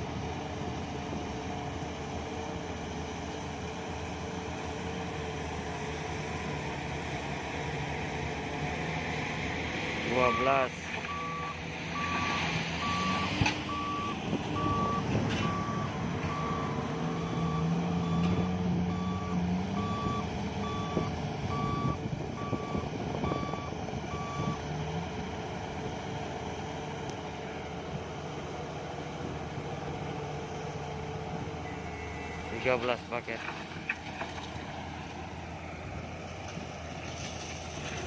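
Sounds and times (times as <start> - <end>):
heavy diesel engines running: 0.0 - 38.0
backup alarm beeping: 11.1 - 24.6.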